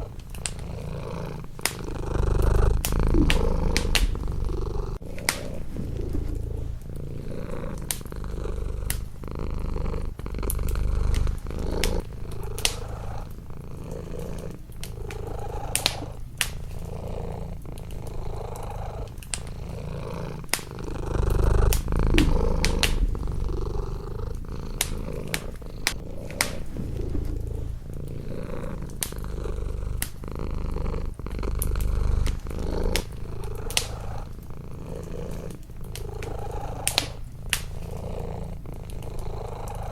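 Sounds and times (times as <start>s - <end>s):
cat purring: 0.0s - 39.9s
wood fire crackling: 0.0s - 39.9s.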